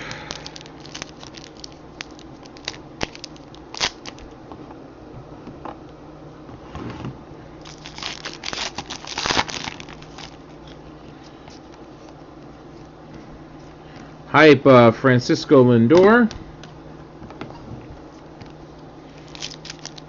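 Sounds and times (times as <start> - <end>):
wrapper crinkling and rustling: 0.2 - 4.3, 7.6 - 10.8, 19.1 - 20.0.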